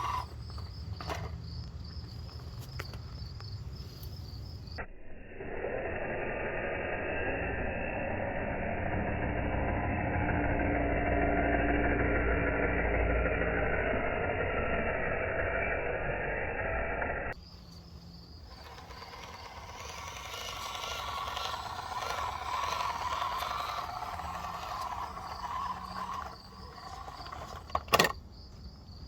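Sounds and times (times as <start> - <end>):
toy truck electric motor and gears: 0.0 - 3.2, 5.4 - 28.3
crickets chirping: 0.0 - 8.6, 17.3 - 29.0
faint mechanical sound: 0.0 - 29.0.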